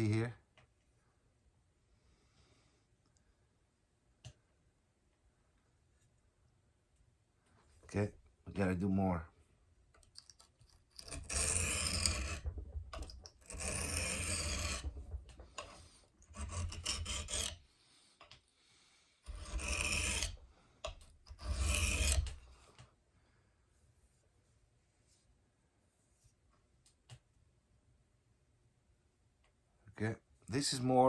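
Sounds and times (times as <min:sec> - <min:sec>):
knife rasping on whetstone: 0:11.0 - 0:15.0, 0:15.6 - 0:17.6, 0:19.3 - 0:20.4, 0:21.0 - 0:22.4.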